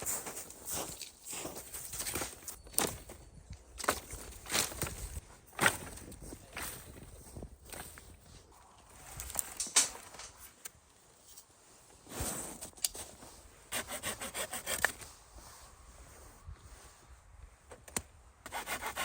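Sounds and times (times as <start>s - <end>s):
hand saw cutting wood: 13.7s - 15.0s, 18.5s - 19.0s.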